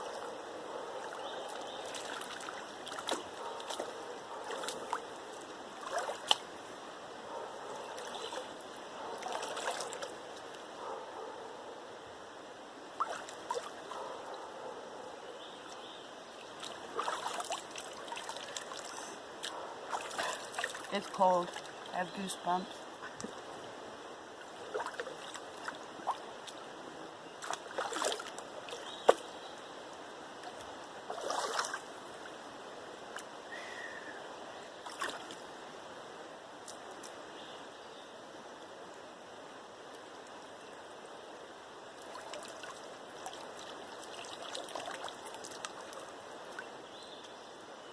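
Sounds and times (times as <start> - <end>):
river flowing: 0.0 - 47.9
water splashing and dripping: 1.0 - 6.9, 7.8 - 10.7, 12.9 - 14.4, 15.6 - 23.7, 24.4 - 26.8, 27.4 - 29.3, 30.4 - 32.4, 34.8 - 35.5, 42.0 - 46.8.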